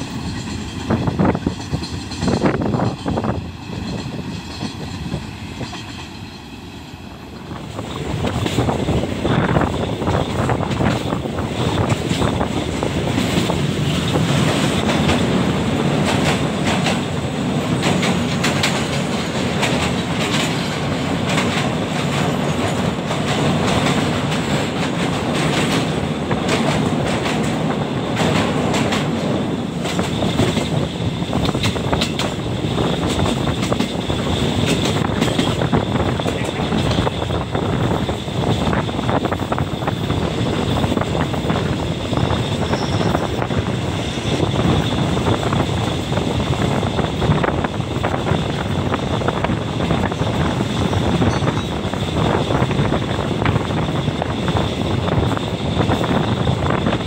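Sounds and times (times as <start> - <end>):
rumble of wheels on rails: 0.0 - 57.0
sharp clacks over rail joints: 17.8 - 29.2, 29.8 - 37.2.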